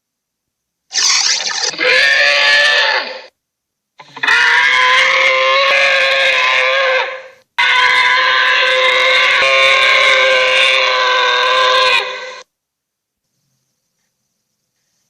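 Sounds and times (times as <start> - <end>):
monster creature calls: 0.9 - 3.3, 4.0 - 12.4.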